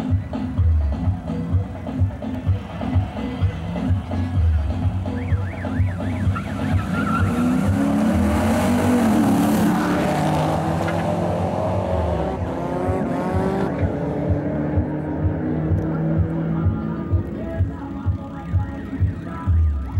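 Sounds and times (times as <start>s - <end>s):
car engines revving: 0.0s - 19.9s
tyre squeal: 5.2s - 8.0s.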